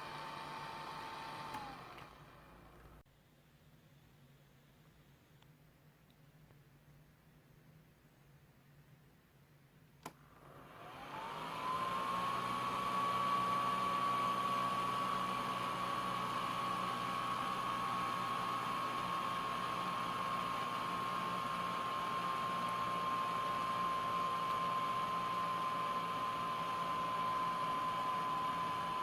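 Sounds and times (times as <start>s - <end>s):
fan motor whirring: 0.0s - 3.0s, 10.0s - 29.0s.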